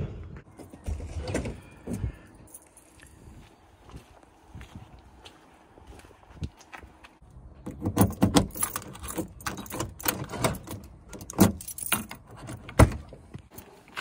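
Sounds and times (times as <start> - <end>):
keys jangling: 7.7 - 12.7.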